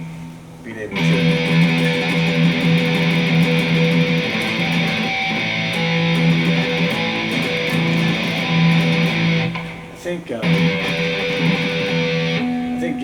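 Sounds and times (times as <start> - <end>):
electric guitar riff: 0.9 - 13.0.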